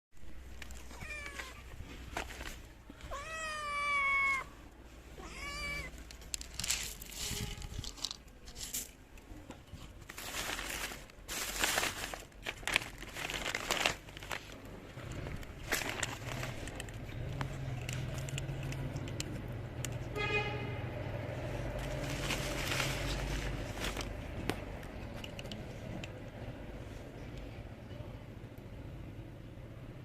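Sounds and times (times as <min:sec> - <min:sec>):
rustling scratchy noises: 0:00.2 - 0:20.1, 0:20.9 - 0:26.2
kitten meowing: 0:03.0 - 0:04.5, 0:05.2 - 0:06.0.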